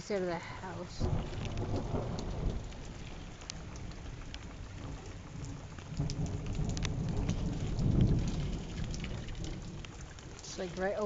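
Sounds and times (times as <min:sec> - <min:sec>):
heavy rain pouring: 0:00.0 - 0:11.0
raindrops splashing close by: 0:00.0 - 0:11.0
thunder rumbling: 0:00.4 - 0:11.0.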